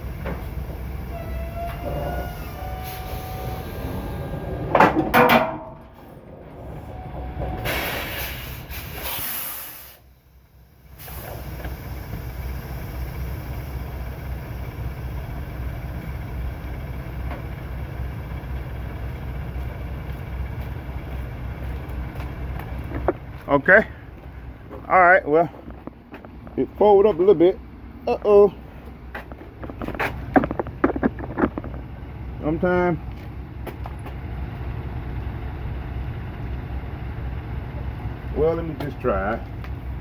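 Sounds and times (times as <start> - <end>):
diesel truck engine idling: 0.0 - 40.0
mechanical screech and clank: 1.1 - 10.2
air hiss: 7.7 - 10.2.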